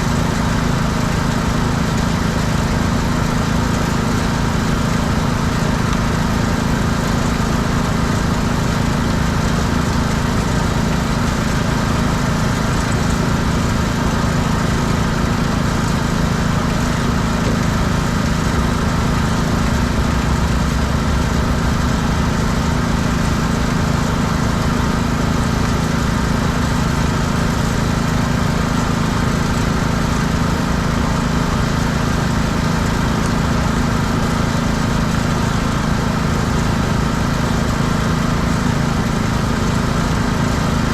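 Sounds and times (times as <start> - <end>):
pressure washer engine running: 0.0 - 40.9.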